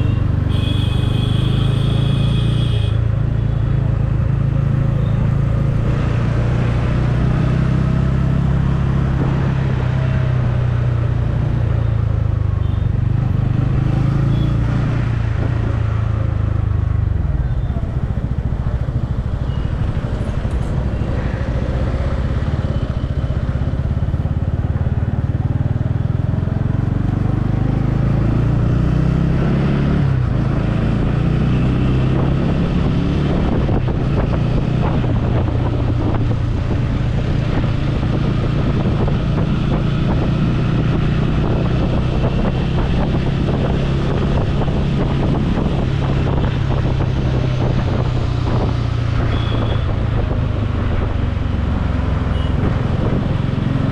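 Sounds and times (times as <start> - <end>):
wind on microphone: 32.0 - 53.9.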